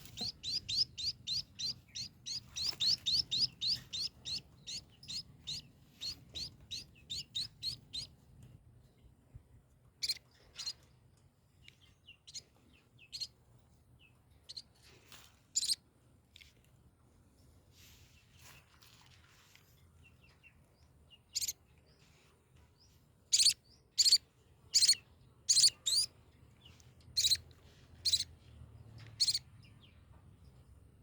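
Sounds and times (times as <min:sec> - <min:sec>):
nestlings begging chirps: 0:00.0 - 0:08.1, 0:15.6 - 0:15.8, 0:23.3 - 0:26.1, 0:27.2 - 0:27.4, 0:28.0 - 0:28.3, 0:29.2 - 0:29.4.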